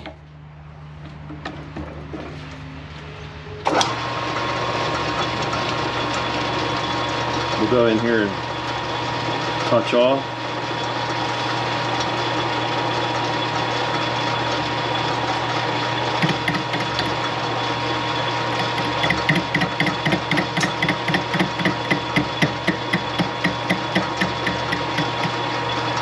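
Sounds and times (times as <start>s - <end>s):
metal lathe humming: 10.7s - 26.0s
boring tool knocking on metal: 18.6s - 25.3s.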